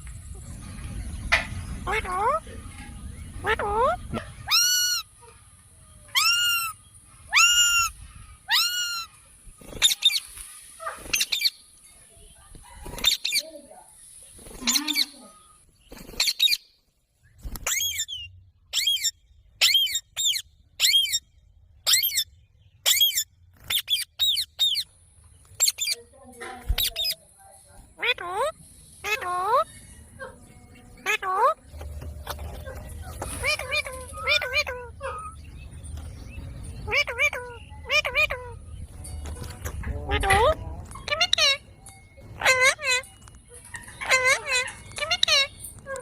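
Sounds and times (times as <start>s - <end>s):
parrot calling: 1.8s - 2.5s, 3.4s - 5.3s, 6.1s - 9.2s, 17.6s - 24.9s, 25.6s - 26.0s, 28.0s - 29.8s, 31.0s - 31.6s, 32.2s - 35.5s, 36.8s - 38.7s, 40.1s - 46.0s.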